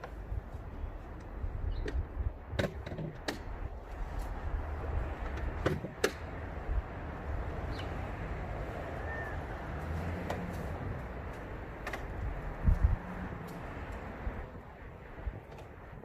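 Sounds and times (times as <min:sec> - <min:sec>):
sharp knocks and clicks: 0:01.8 - 0:03.6, 0:05.2 - 0:06.4, 0:11.3 - 0:12.3.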